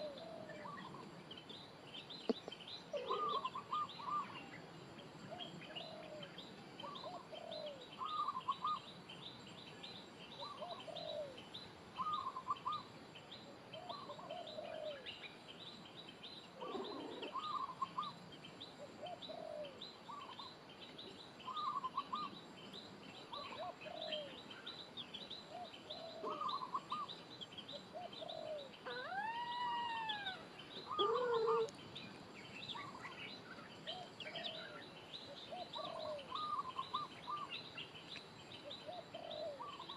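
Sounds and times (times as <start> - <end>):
birds chirping: 0.0 - 39.9
short low bird calls: 2.1 - 4.6, 5.3 - 8.9, 16.6 - 18.2, 25.4 - 31.8, 32.7 - 38.0
rising and falling bird call: 28.0 - 31.8.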